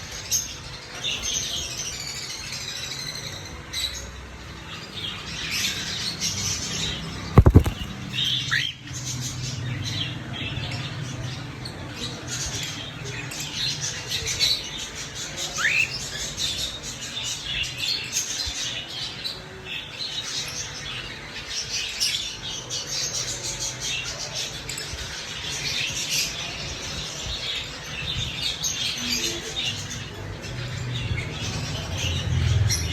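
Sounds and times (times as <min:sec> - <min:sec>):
cockatiel chirping: 0:07.4 - 0:07.8
sharp knock: 0:07.4 - 0:07.9.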